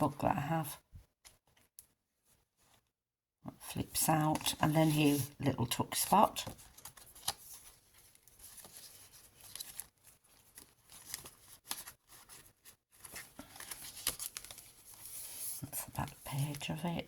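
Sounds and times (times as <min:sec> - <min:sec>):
paper and card rustling: 0:03.8 - 0:17.0.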